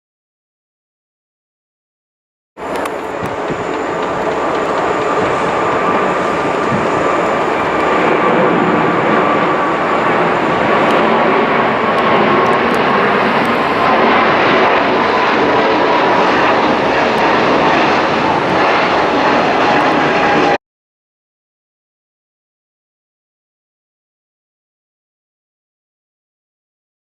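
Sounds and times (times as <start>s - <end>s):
jet engines roaring: 2.6s - 20.6s.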